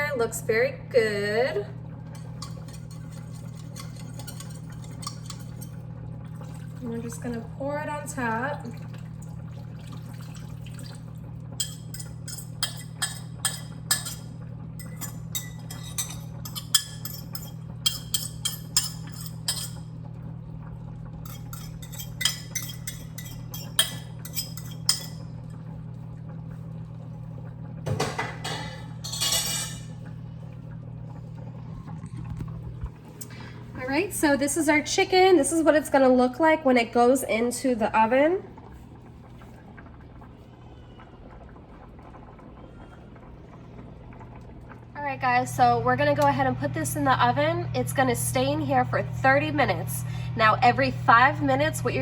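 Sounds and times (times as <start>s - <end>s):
steady low hum: 0.0s - 39.6s, 42.0s - 52.0s
metal spoon clinking on glass: 11.6s - 14.2s, 14.8s - 19.8s, 21.3s - 25.2s.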